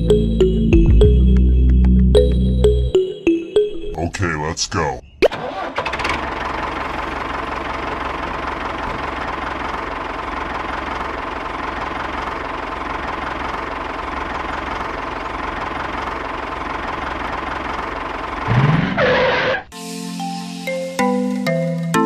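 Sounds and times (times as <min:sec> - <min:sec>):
tractor engine chugging: 0:05.3 - 0:19.5.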